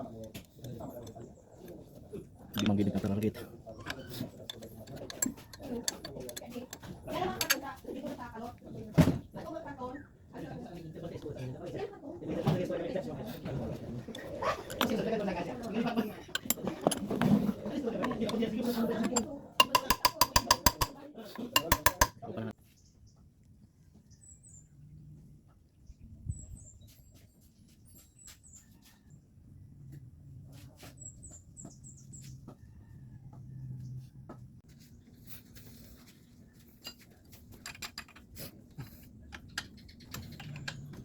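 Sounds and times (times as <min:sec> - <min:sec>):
metal hand tools clinking: 0:03.8 - 0:07.6, 0:14.2 - 0:15.1, 0:16.3 - 0:22.2
small birds chirping: 0:22.6 - 0:29.0, 0:30.8 - 0:33.0, 0:39.0 - 0:41.0.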